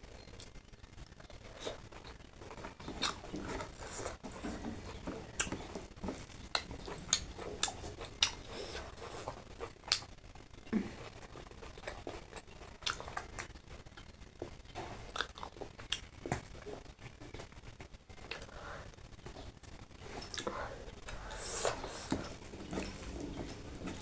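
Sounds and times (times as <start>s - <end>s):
person chewing food: 1.2s - 24.0s.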